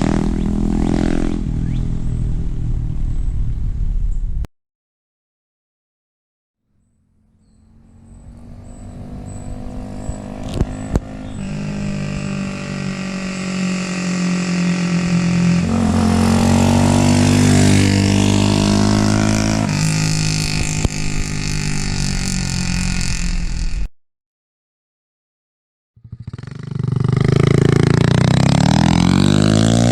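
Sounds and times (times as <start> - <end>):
motorbike engine running: 26.0 - 29.3.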